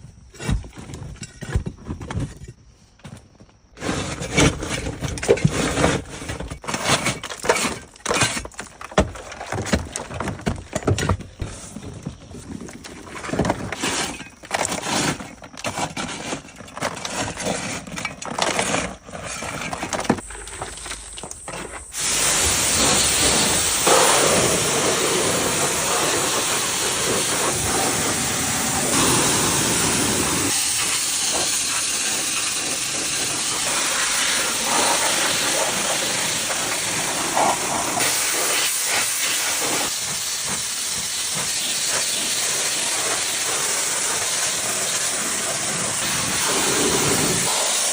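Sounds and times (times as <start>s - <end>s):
pressure washer water jet hissing: 21.9s - 47.9s.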